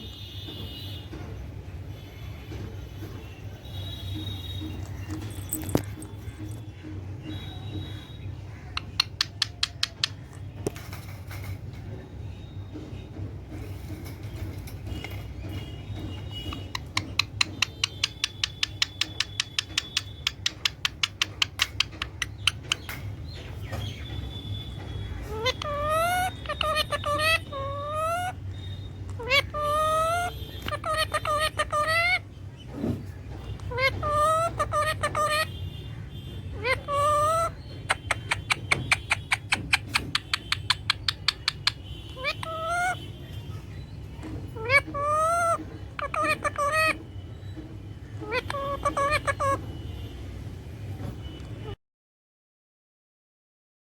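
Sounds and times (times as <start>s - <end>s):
parrot clicking chirps: 8.7s - 10.4s, 16.4s - 24.0s, 24.8s - 32.2s, 36.5s - 43.0s, 48.2s - 49.6s
parrot wavering call: 25.3s - 28.4s, 29.1s - 32.2s, 33.6s - 35.5s, 36.6s - 43.0s, 44.6s - 47.0s, 48.2s - 49.6s.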